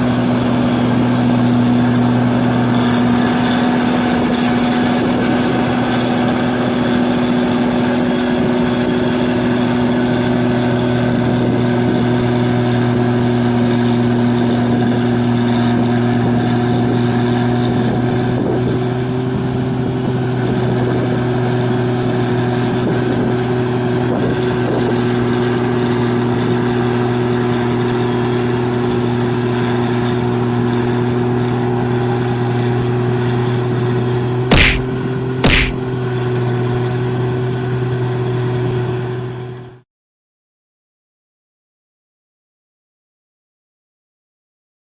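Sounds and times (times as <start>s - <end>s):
combine harvester engine running: 0.0s - 14.5s.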